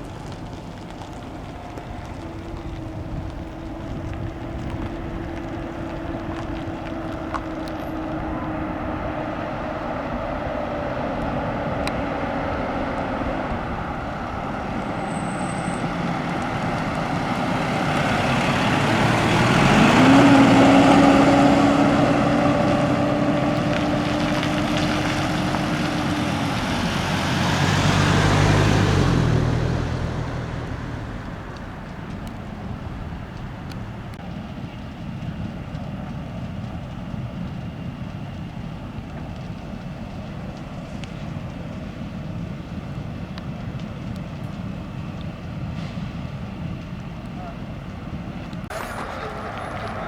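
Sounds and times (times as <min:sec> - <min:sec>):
traffic noise: 0:00.0 - 0:50.0
truck engine driving by: 0:00.0 - 0:50.0.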